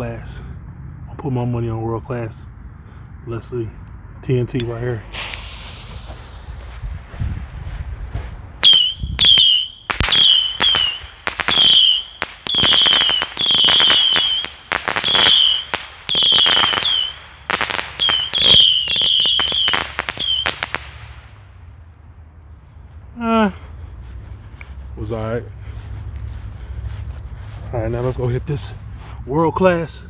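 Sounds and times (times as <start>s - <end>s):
firework pops and crackles: 4.6s - 21.3s
whistling firework missiles: 4.6s - 21.3s.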